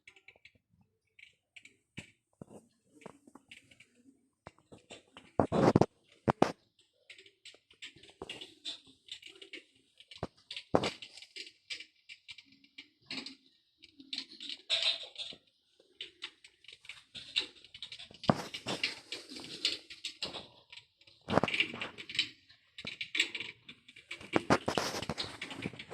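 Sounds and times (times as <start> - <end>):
electric fireplace crackling: 15.8 - 25.9.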